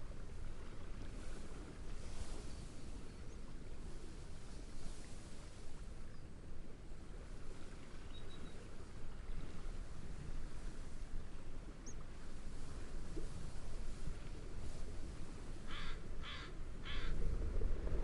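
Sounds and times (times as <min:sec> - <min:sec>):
gentle sea waves: 0:00.0 - 0:18.0
wind through reeds: 0:00.0 - 0:18.0
faint bird chirps: 0:08.1 - 0:08.7.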